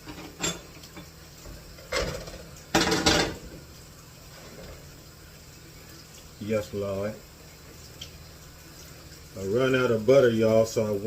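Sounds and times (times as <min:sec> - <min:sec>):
kitchenware clattering: 0:00.0 - 0:01.1, 0:01.8 - 0:03.5.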